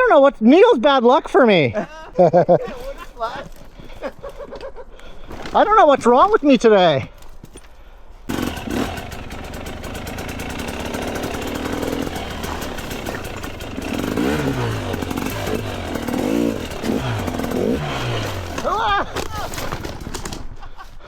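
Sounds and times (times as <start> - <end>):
dirt bike engine revving: 8.3 - 19.0.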